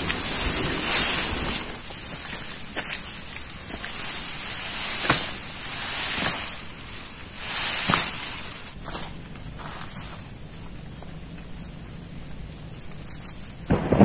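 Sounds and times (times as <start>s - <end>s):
heavy rain through trees: 0.0s - 8.8s, 13.6s - 14.0s.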